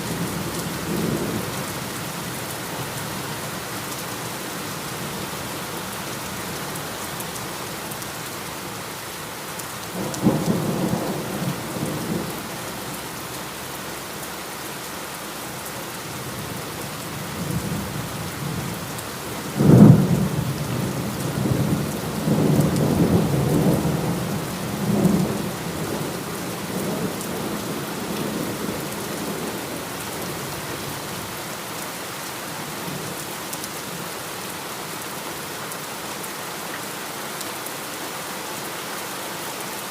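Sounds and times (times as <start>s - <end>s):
heavy rain: 0.0s - 39.9s
thunder rumbling and cracking: 19.6s - 29.6s.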